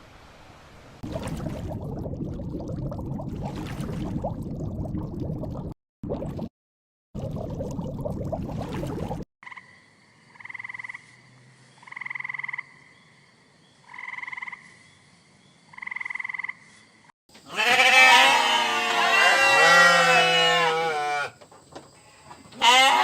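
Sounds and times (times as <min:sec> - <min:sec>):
animals bleating: 0:17.5 - 0:21.4, 0:22.0 - 0:23.0.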